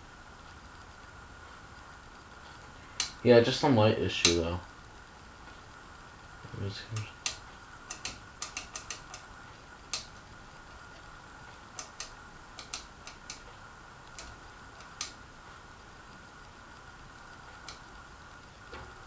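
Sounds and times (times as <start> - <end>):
faint high whine: 0.0 - 19.0
sharp clicks: 3.0 - 3.2, 6.9 - 9.3, 11.8 - 13.5.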